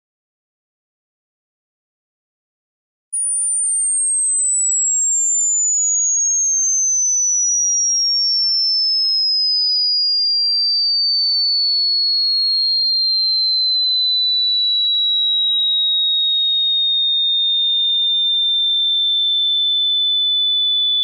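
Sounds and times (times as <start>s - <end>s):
high-pitched sine tone gliding down: 3.2s - 9.6s.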